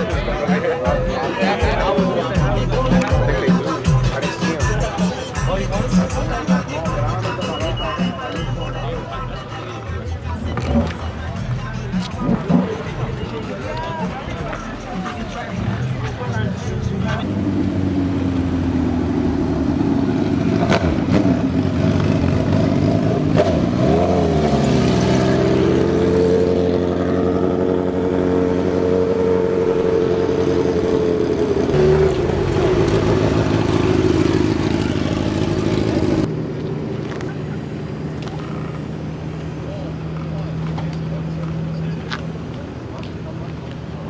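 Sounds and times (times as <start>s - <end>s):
car engine revving: 10.3s - 42.8s.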